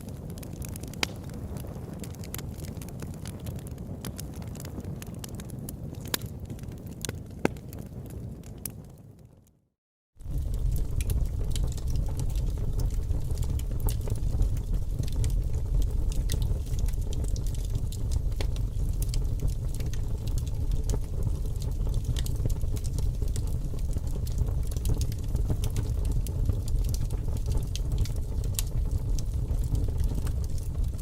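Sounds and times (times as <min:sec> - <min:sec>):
fire crackling and popping: 0:00.0 - 0:09.6, 0:10.2 - 0:31.0
low rumble: 0:10.2 - 0:22.3.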